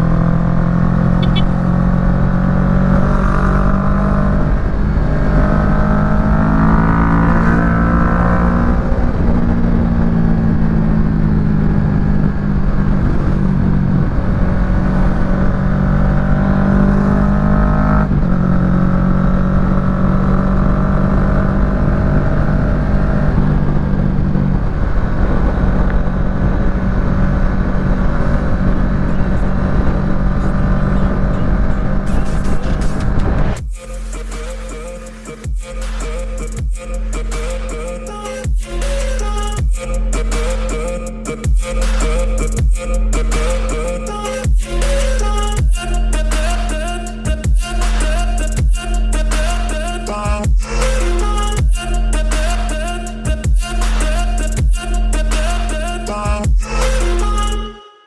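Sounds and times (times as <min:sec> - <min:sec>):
wind rumble: 0:00.0 - 0:17.4, 0:20.6 - 0:34.1
motorcycle engine running: 0:00.0 - 0:34.2, 0:44.4 - 0:57.6.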